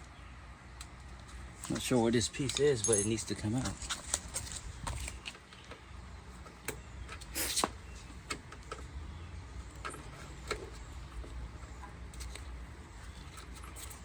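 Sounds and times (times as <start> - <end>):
hand tools clicking and knocking: 1.8 - 3.8.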